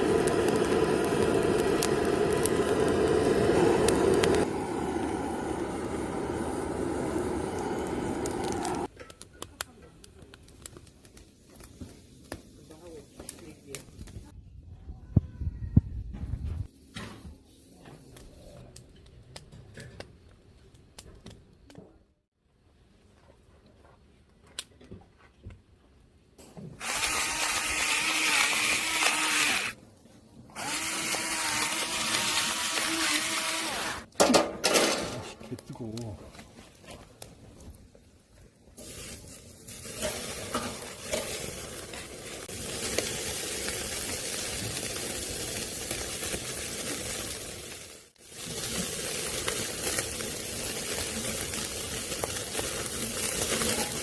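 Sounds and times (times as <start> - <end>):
rain on a tent: 0.0 - 3.0, 42.4 - 54.0
small electric motor whining: 26.8 - 29.8, 30.6 - 34.1.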